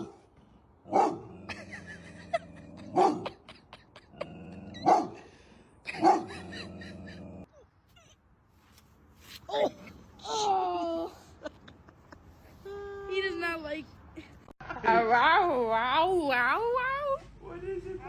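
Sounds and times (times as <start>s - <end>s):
dog barking: 0.9s - 1.3s, 3.0s - 3.3s, 4.8s - 5.2s, 6.0s - 6.3s.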